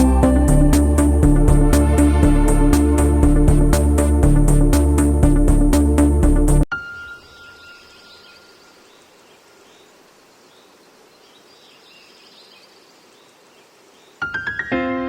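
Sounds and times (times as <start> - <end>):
piano music: 6.5 - 8.2, 14.2 - 15.0
faint high chirps: 6.7 - 9.9
faint background noise: 6.7 - 14.8.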